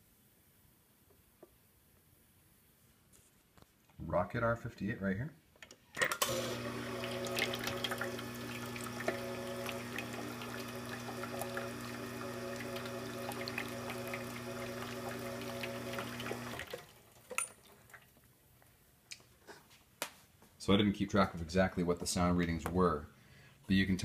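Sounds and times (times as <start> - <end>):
espresso machine pump humming: 6.2 - 16.8.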